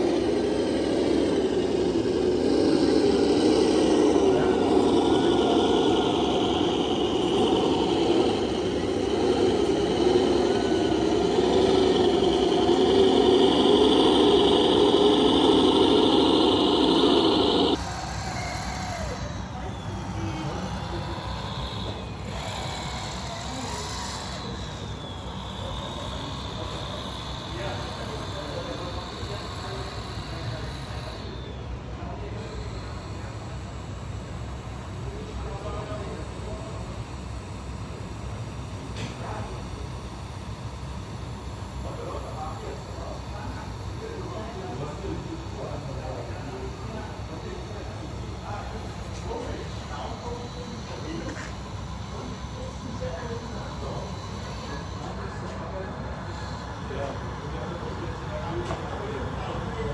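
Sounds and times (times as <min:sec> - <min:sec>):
high whine: 0:00.0 - 0:32.3
model machines rumbling: 0:00.0 - 0:59.9
rc truck engine drone: 0:00.0 - 0:59.9.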